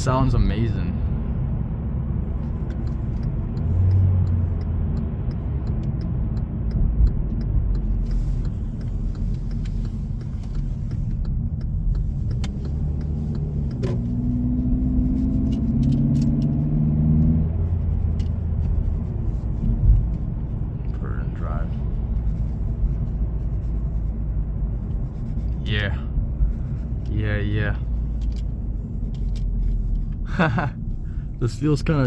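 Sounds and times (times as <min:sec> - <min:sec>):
car engine: 0:00.0 - 0:32.0
road noise: 0:00.0 - 0:32.0.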